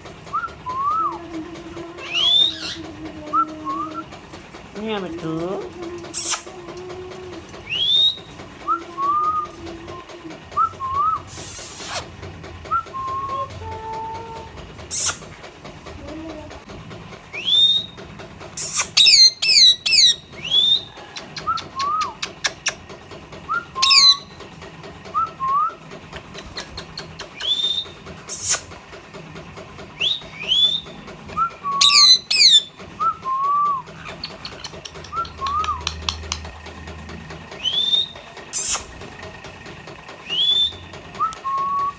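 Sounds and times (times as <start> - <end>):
parrot chattering trill: 0.4 - 12.2, 12.8 - 16.6, 17.3 - 22.9, 23.5 - 24.4, 26.2 - 28.8, 29.9 - 36.6, 37.5 - 39.1
parrots calling: 0.7 - 4.1, 4.9 - 10.0, 12.9 - 15.4, 17.3 - 22.8, 23.6 - 24.4, 26.2 - 28.7, 31.6 - 32.8, 33.7 - 36.6, 37.5 - 39.0.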